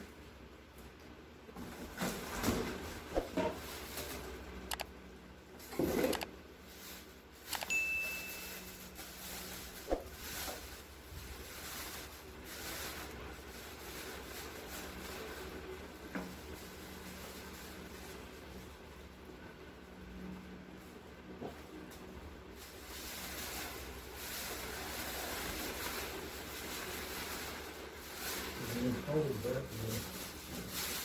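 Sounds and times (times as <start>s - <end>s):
short high beep: 7.6s - 8.8s.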